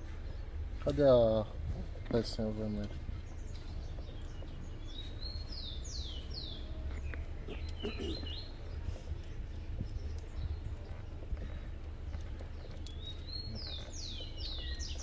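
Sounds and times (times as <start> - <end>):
low outdoor rumble: 0.0 - 15.0
faint clicks: 9.2 - 14.6
bird whistling song: 12.8 - 15.0.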